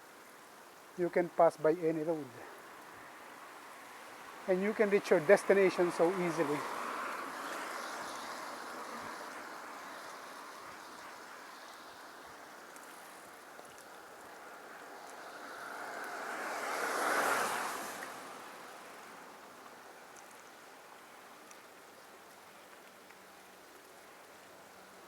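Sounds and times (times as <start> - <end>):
tyres hissing on wet road: 0.2 - 20.1.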